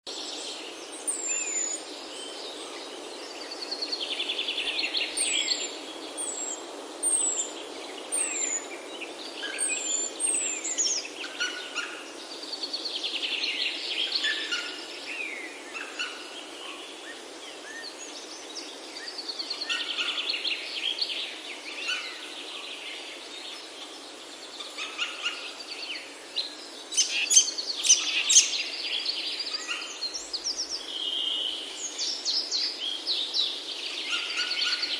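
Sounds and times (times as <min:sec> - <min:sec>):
steady soft hiss: 0:00.2 - 0:34.9
rapid trilling birdsong: 0:26.6 - 0:34.9.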